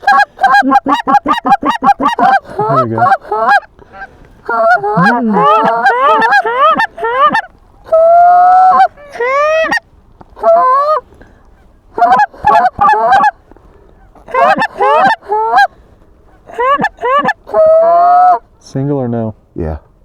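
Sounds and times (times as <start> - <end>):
goose call honks and clucks: 0.0 - 9.8, 10.4 - 11.0, 12.0 - 13.4, 14.0 - 15.7, 16.3 - 18.4.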